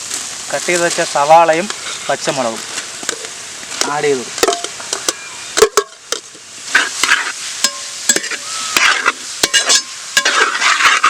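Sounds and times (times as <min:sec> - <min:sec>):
onions sizzling in hot oil: 0:00.0 - 0:11.0
spatula knocking and scraping pan: 0:04.4 - 0:11.0.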